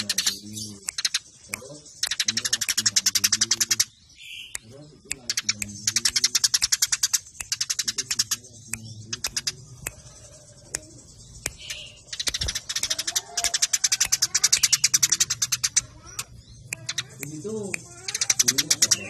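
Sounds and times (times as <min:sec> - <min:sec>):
sparrows chirping: 0:00.0 - 0:19.0.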